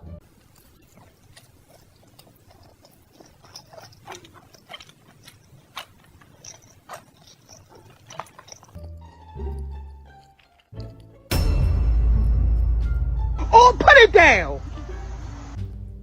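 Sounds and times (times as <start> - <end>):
wet chewing and lip-smacking: 0.2 - 11.3.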